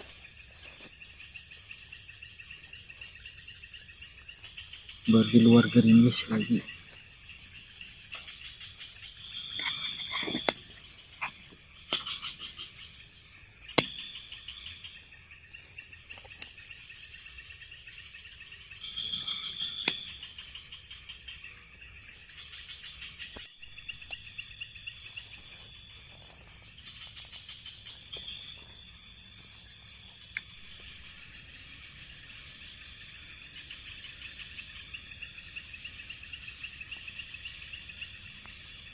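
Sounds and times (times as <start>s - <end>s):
insect high-pitched whine: 0.0s - 38.9s
insects buzzing high-pitched: 0.0s - 38.9s
sharp clicks and chirps: 8.0s - 13.0s, 18.8s - 21.5s, 22.4s - 25.4s.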